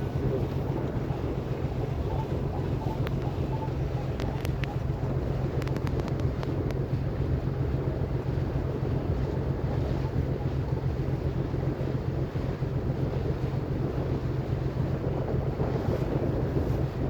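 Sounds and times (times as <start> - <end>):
water rushing: 0.0 - 16.2
boat engine humming: 0.0 - 17.0
wind on microphone: 0.0 - 17.0.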